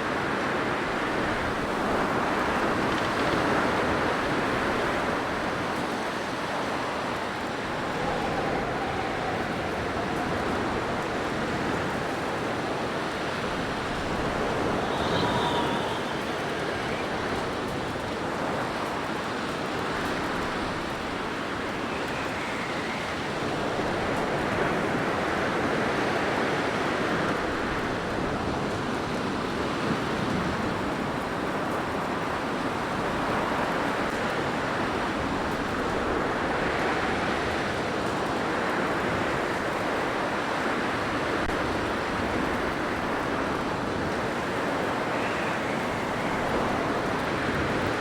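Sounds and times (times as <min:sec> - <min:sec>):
blizzard wind blowing: 0:00.0 - 0:48.0.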